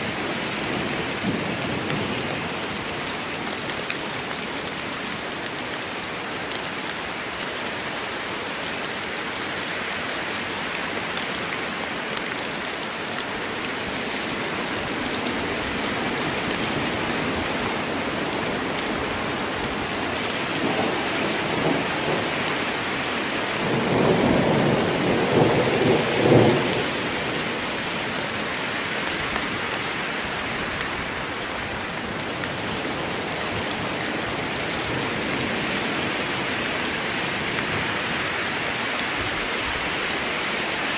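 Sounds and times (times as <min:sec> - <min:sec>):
steady rain falling: 0:00.0 - 0:40.9
thunder rumbling: 0:20.5 - 0:27.5.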